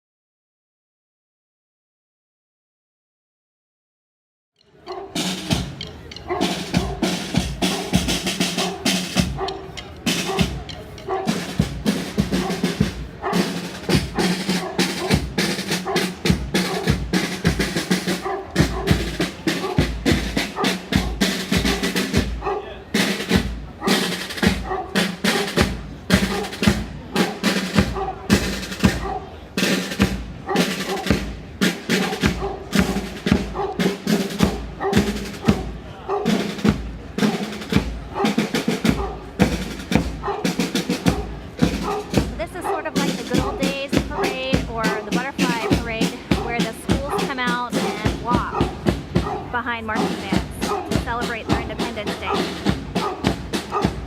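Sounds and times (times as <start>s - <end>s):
marching band playing: 4.8s - 54.0s
snare drum rolls: 5.1s - 54.0s
bass drum beats: 41.0s - 54.0s.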